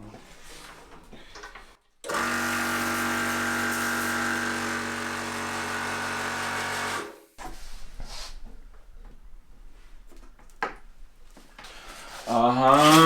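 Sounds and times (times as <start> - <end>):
air compressor motor whine: 2.1 - 7.2.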